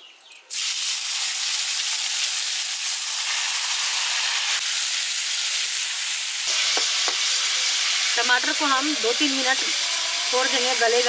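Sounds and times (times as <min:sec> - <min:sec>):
tomatoes sizzling in hot oil: 0:00.5 - 0:11.0.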